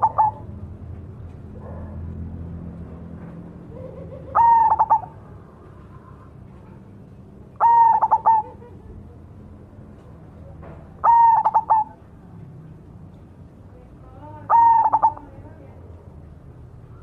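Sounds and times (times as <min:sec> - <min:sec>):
dove cooing: 0:00.0 - 0:00.6, 0:03.6 - 0:06.8, 0:07.5 - 0:08.9, 0:11.0 - 0:12.0, 0:14.4 - 0:15.4.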